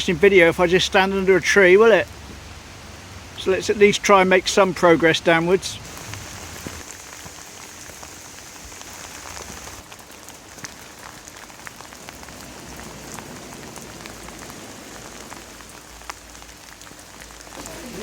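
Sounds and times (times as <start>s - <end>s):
heavy rain falling: 0.0s - 18.0s
sharp taps of raindrops: 0.0s - 18.0s.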